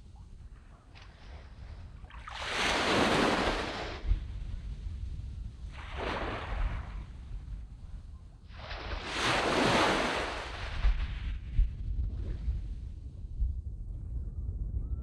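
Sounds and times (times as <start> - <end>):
waves breaking on beach: 2.1 - 4.1, 5.8 - 7.0, 8.5 - 11.3.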